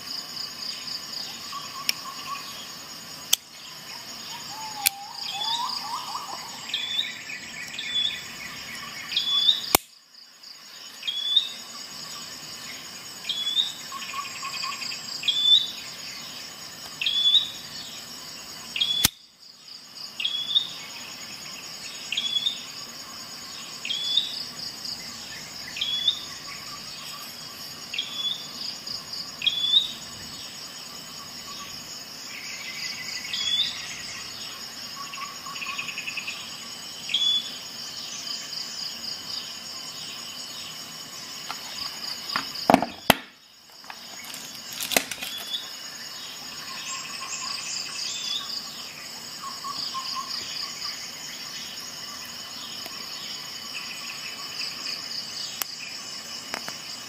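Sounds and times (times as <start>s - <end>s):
high insect trill: 0.0s - 57.0s
bird chirping: 3.5s - 9.8s, 23.5s - 28.6s, 31.4s - 38.3s, 45.1s - 54.8s.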